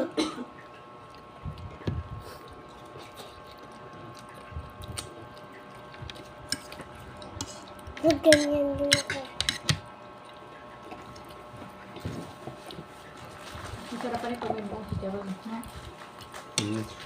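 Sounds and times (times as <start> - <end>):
faint steady hum: 0.0 - 17.0
chewing and eating: 0.5 - 17.0.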